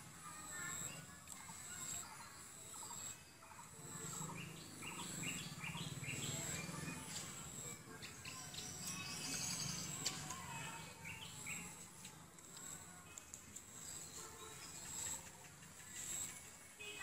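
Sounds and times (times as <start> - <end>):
birds chirping and calling: 0.7 - 11.9.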